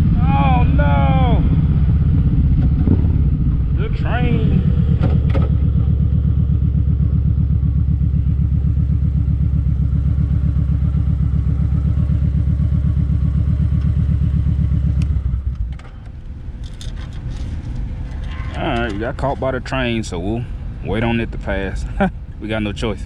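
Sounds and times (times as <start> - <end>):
motorcycle engine running: 0.0 - 21.2.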